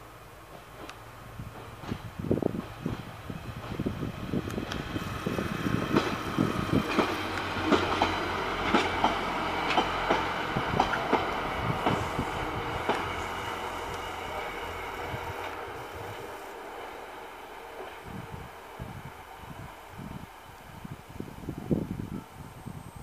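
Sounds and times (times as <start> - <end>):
wheels clattering over rail joints: 0.5 - 14.7
engine drone: 5.0 - 17.6.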